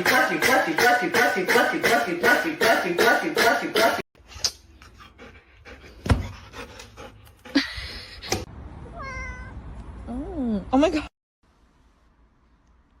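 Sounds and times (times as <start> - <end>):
dog panting: 4.8 - 8.0.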